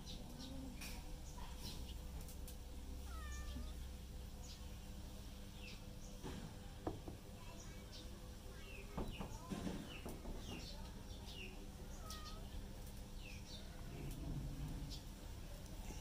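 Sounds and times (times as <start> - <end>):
birds chirping: 0.0 - 2.2, 3.0 - 4.9, 7.4 - 16.0
soft knocks: 6.2 - 7.2.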